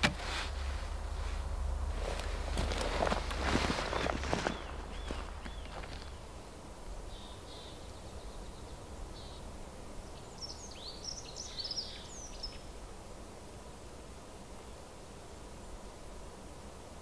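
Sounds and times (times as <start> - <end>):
low steady background hiss: 0.0 - 17.0
birds chirping and twittering: 1.9 - 12.8.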